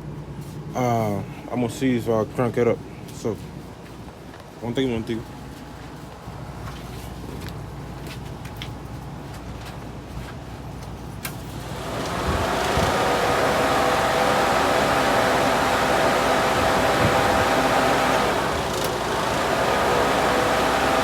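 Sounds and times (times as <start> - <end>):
electric motor whirring: 11.6 - 21.0.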